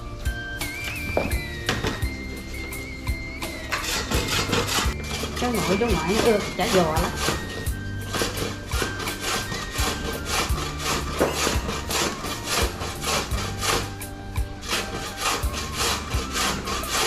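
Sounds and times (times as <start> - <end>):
carrot grating on a grater: 3.5 - 17.0.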